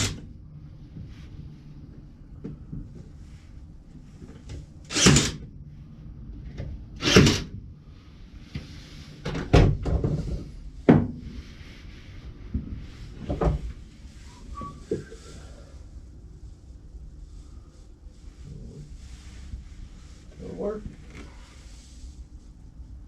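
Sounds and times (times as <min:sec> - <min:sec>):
wooden boards knocking and thudding: 0:10.9 - 0:11.2.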